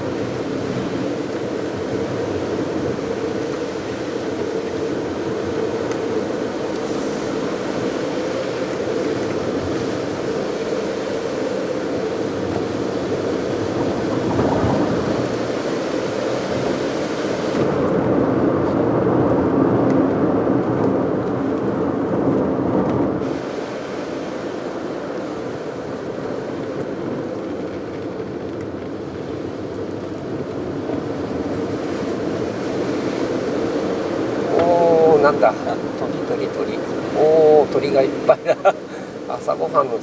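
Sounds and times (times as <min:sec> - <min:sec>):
car engine and tyre noise: 0:00.0 - 0:40.0
hiss from wet tarmac: 0:05.8 - 0:13.6, 0:15.1 - 0:18.0, 0:23.2 - 0:26.8, 0:36.7 - 0:39.5.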